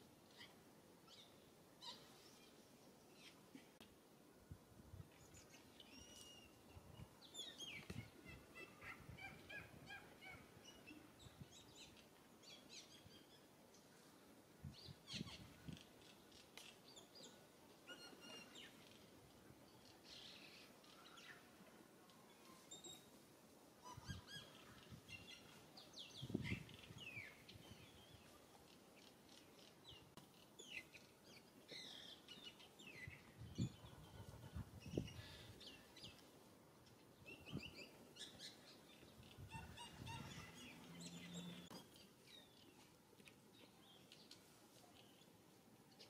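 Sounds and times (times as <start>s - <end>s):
small birds chirping: 5.2s - 14.1s, 23.8s - 46.0s.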